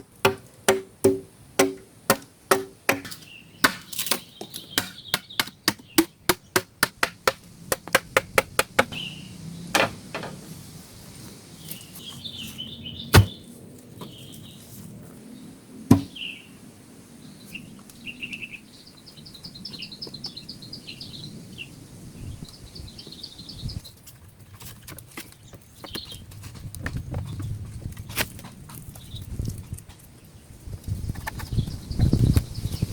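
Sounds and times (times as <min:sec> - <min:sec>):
chopping wood: 0:00.2 - 0:09.0, 0:13.1 - 0:13.4, 0:15.9 - 0:16.2.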